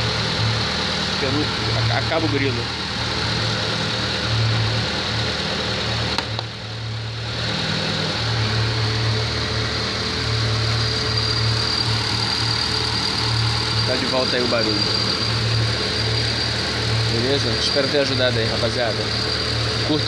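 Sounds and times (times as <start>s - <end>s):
car engine idling: 0.0s - 20.0s
belt squealing: 10.6s - 20.0s.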